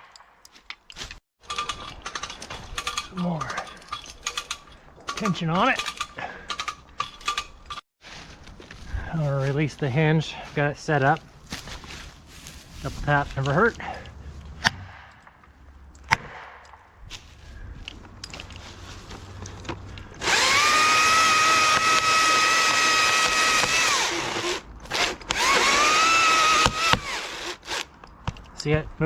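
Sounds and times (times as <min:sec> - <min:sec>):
chainsaw revving and cutting: 0:20.2 - 0:27.9.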